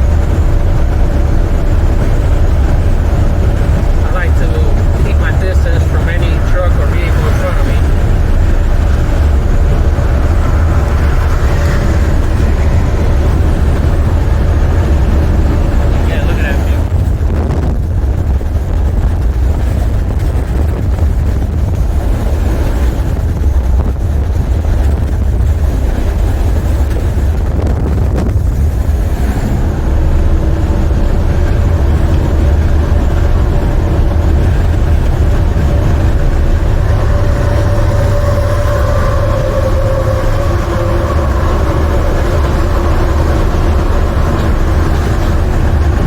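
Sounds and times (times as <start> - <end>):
steady hum: 0.0 - 17.0, 28.1 - 46.0
road noise: 0.0 - 46.0
truck diesel engine rumbling: 0.0 - 46.0.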